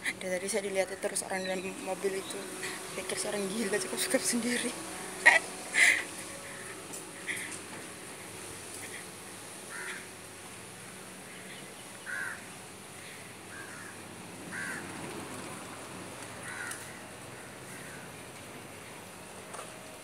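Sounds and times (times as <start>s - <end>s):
outdoor background hiss: 0.0s - 20.0s
bird calling: 8.7s - 10.1s, 11.2s - 14.8s.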